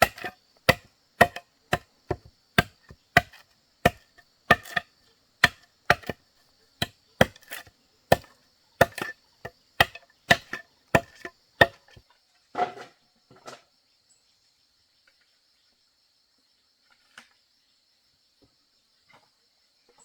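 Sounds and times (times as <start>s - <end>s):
tool chopping into wood: 0.0s - 6.2s, 6.8s - 12.0s
crickets chirring: 0.0s - 12.0s.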